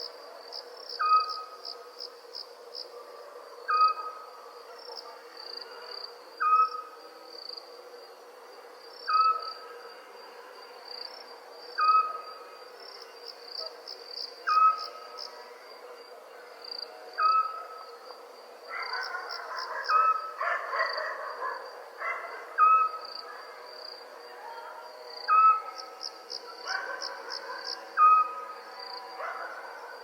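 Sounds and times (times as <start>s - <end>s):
crickets trilling: 0.0s - 30.0s
owl calling: 6.4s - 6.9s, 22.6s - 23.0s, 28.0s - 28.4s.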